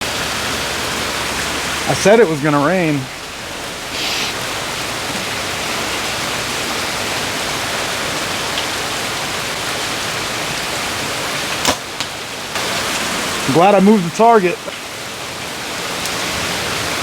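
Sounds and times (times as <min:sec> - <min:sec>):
heavy rain falling: 0:00.0 - 0:17.0
sharp snap: 0:11.6 - 0:12.2.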